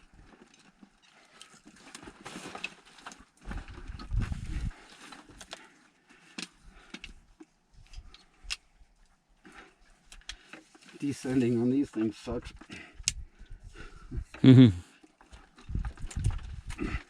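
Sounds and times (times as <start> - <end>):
climbing gear knocking against rock: 15.7 - 17.0.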